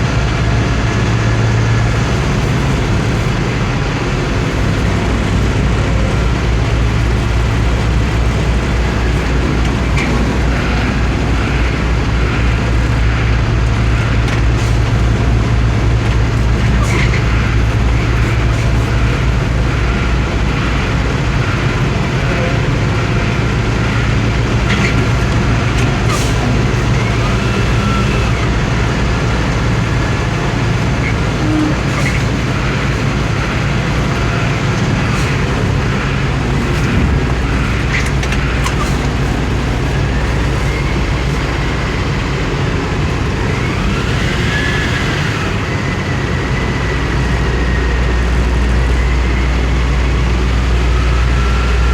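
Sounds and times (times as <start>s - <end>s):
truck engine running steadily: 0.0s - 51.9s.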